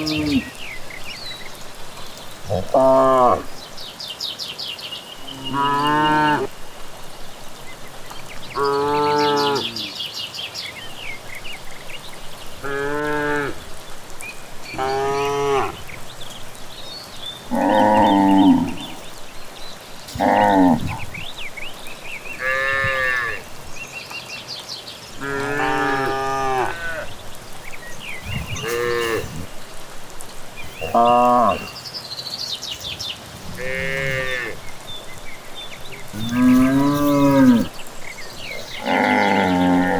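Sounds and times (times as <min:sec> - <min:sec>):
birds chirping faintly: 0:00.0 - 0:39.9
cattle mooing: 0:25.2 - 0:27.1, 0:28.4 - 0:29.4, 0:33.5 - 0:34.6, 0:36.1 - 0:37.7, 0:38.7 - 0:39.9.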